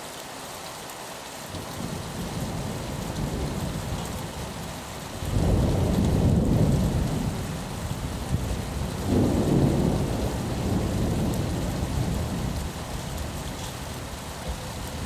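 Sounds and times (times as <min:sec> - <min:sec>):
steady rain: 0:00.0 - 0:15.0
thunder rumble: 0:05.2 - 0:15.0.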